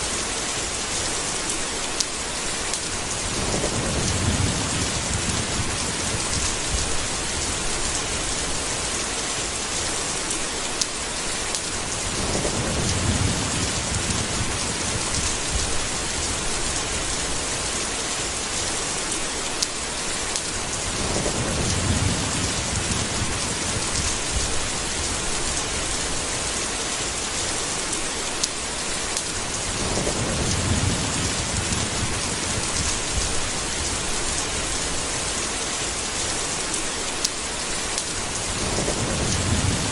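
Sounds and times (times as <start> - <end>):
heavy rain: 0.0 - 39.9
thunder rumbling: 3.0 - 9.0, 11.8 - 17.8, 20.6 - 26.4, 29.4 - 35.4, 38.2 - 39.9.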